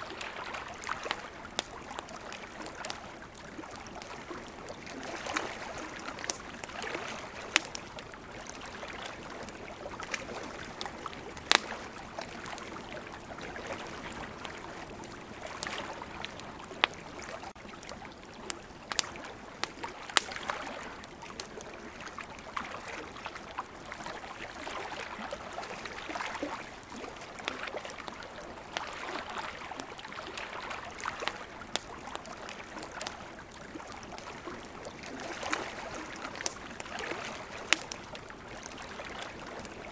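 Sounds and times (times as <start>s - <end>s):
wood fire crackling: 0.1s - 22.1s, 30.6s - 39.9s.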